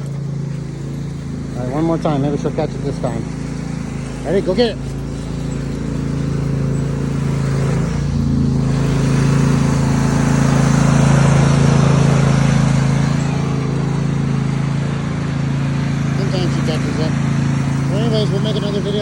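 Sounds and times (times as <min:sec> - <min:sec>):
tractor engine running steadily: 0:00.0 - 0:19.0.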